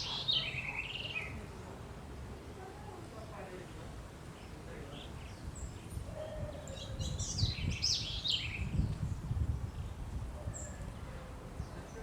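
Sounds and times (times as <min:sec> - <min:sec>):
birds singing: 0:00.0 - 0:01.4, 0:04.4 - 0:10.8.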